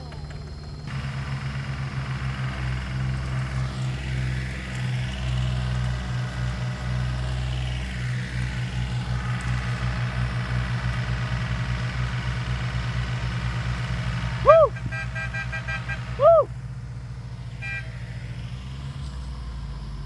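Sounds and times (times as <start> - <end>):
diesel tractor engine throbbing: 0.0 - 20.0.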